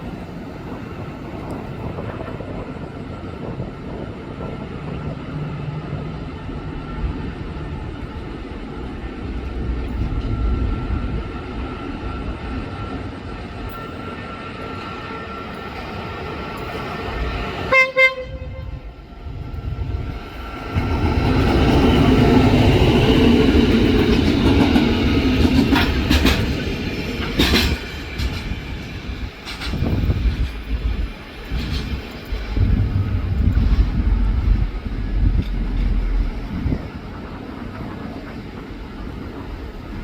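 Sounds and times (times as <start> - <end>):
wheels rumbling on rail: 0.0 - 40.0
locomotive rumbling: 0.6 - 40.0
train horn blasts: 17.6 - 19.0.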